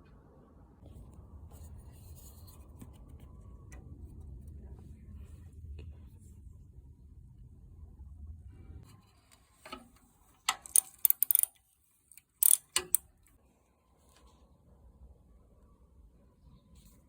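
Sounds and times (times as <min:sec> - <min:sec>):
metallic clicks on bicycle brake: 0:10.5 - 0:13.0.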